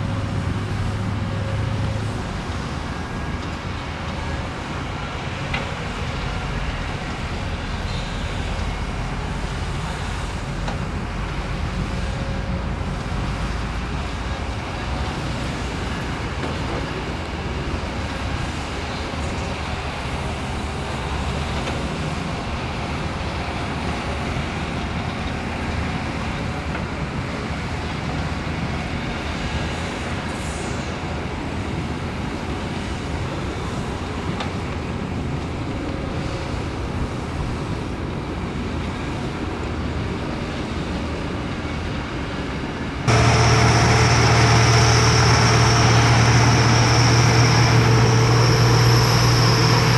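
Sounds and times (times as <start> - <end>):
diesel construction machinery running: 0.0 - 49.9
engine with low hum: 43.0 - 49.9.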